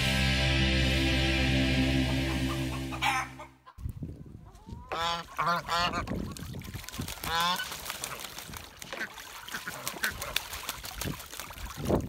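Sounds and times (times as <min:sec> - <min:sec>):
geese honking: 0:01.2 - 0:03.7, 0:04.9 - 0:06.1, 0:07.3 - 0:07.8.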